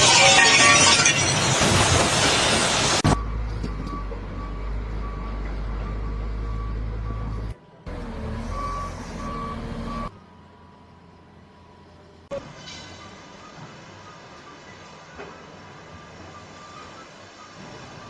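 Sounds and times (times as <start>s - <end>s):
reversing alarm beeping: 3.0s - 10.4s, 13.0s - 18.0s
low engine rumble: 3.0s - 12.4s.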